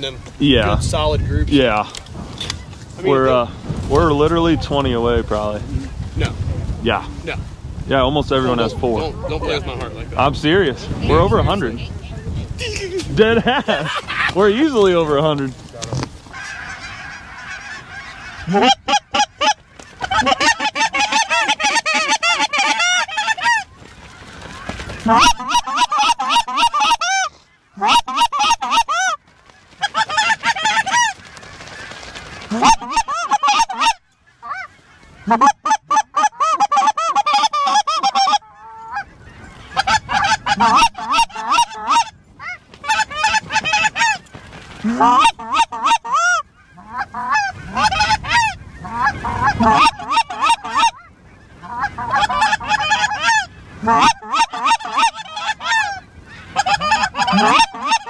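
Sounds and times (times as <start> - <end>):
goose honking and clucking: 16.3 - 58.0.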